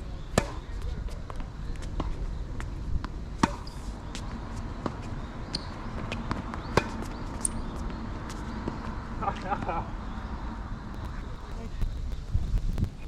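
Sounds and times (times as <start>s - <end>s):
wind rumble on microphone: 0.0s - 13.0s
tennis ball bouncing on hard court: 0.3s - 0.6s, 3.0s - 9.0s
tennis ball hit by racket: 0.3s - 0.6s, 3.4s - 3.8s, 5.6s - 7.6s.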